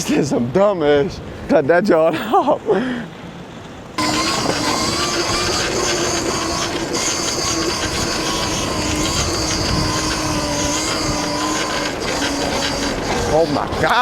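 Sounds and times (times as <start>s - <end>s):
wind buffeting microphone: 3.8s - 14.0s
electric motor whining: 4.0s - 14.0s.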